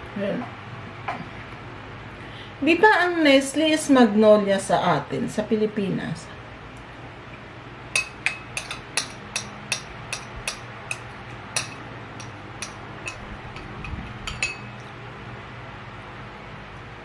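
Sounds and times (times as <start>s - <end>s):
spoon clinking against dish: 8.0s - 14.9s.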